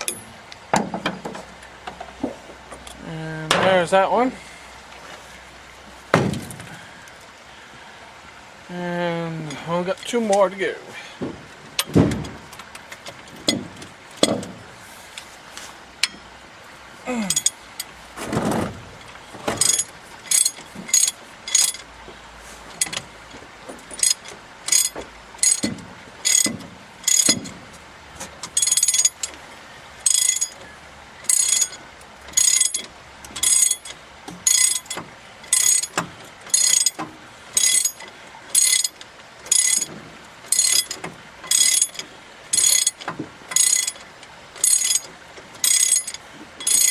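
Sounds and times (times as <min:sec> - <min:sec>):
metal clanks and knocks: 0:00.0 - 0:03.9, 0:06.1 - 0:06.7, 0:11.2 - 0:14.8, 0:18.2 - 0:29.4, 0:30.1 - 0:46.9
ratchet pawl clicking: 0:42.6 - 0:44.0.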